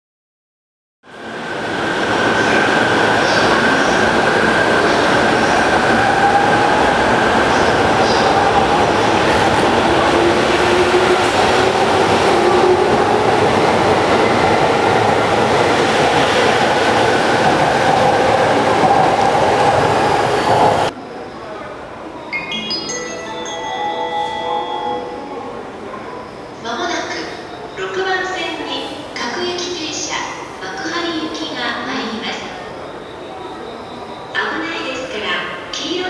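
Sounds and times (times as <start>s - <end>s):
electric train running by: 1.2s - 28.3s.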